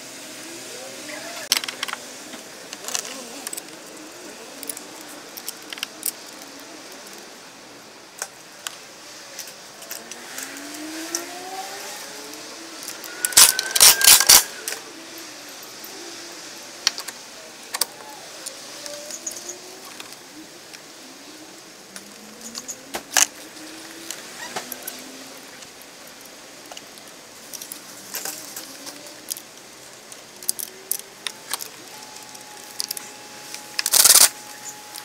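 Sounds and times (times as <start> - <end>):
metal tools clinking on engine parts: 12.8 - 14.8.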